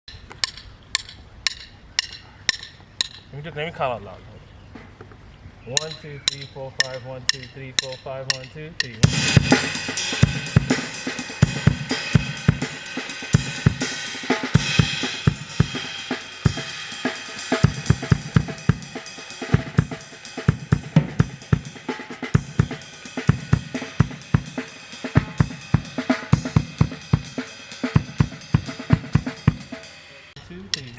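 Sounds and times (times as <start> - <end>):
drum kit groove: 0.0 - 3.3, 5.7 - 30.9
hi-hats and cymbals ringing: 0.1 - 3.3, 5.7 - 30.9
bass drum: 5.8 - 14.0, 14.6 - 15.9, 17.6 - 19.0, 22.4 - 24.6, 25.2 - 27.3, 28.0 - 29.7
snare drum: 5.8 - 29.8.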